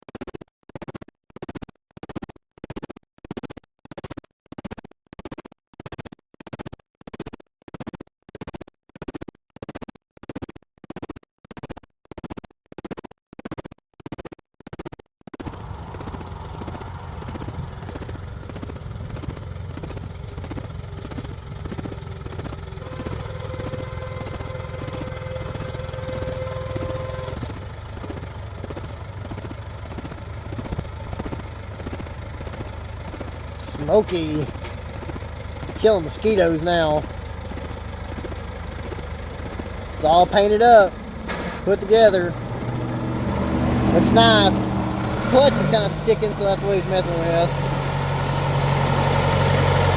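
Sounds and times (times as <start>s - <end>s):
tractor engine running: 13.5s - 49.9s.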